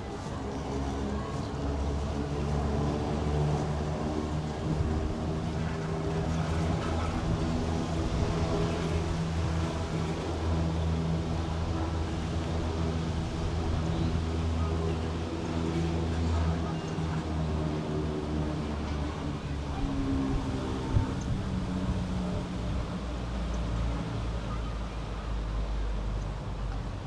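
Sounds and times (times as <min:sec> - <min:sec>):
vehicle engine humming: 0:03.9 - 0:15.4, 0:19.4 - 0:23.4.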